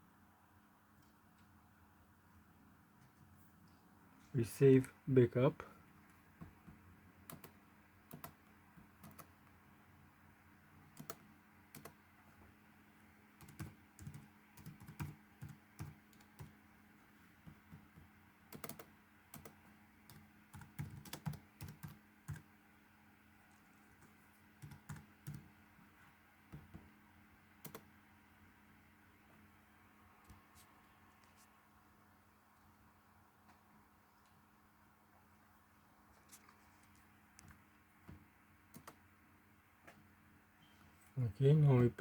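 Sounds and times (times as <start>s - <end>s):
faint steady hum: 0.0s - 42.0s
typing on computer keyboard: 7.3s - 8.4s, 9.0s - 9.4s, 10.9s - 12.0s, 13.4s - 16.6s, 17.5s - 22.5s, 24.0s - 25.5s, 27.6s - 27.9s, 38.7s - 39.0s.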